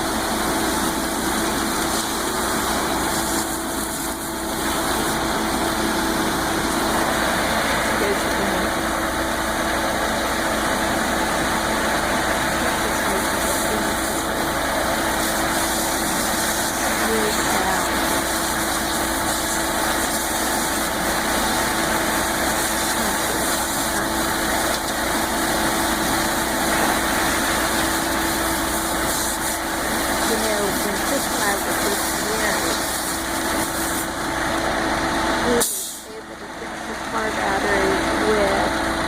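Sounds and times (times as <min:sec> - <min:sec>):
truck engine idling: 0:00.0 - 0:39.0.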